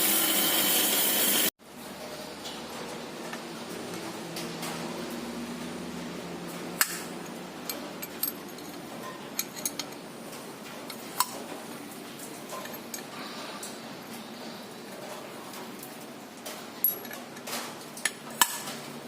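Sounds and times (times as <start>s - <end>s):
metallic clicks and clinks: 7.2s - 10.0s, 12.2s - 13.1s, 16.8s - 18.5s.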